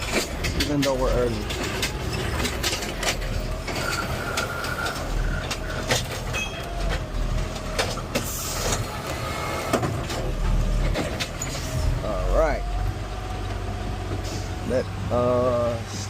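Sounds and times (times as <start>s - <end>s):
knocks and rattles: 0.0s - 9.0s, 9.6s - 12.0s
garbage truck engine rumble: 0.0s - 16.0s.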